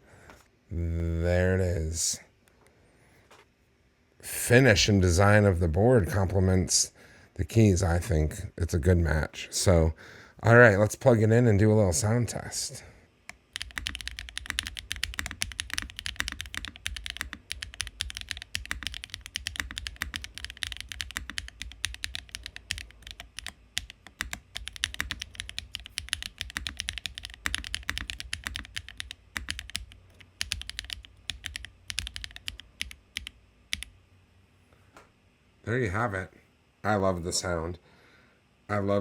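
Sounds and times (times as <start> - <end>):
mechanical keyboard clacking: 13.3 - 33.9.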